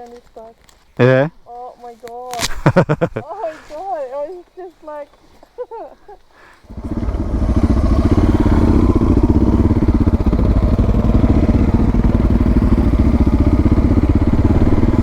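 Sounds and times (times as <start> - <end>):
motorcycle engine idling: 6.6 - 15.0.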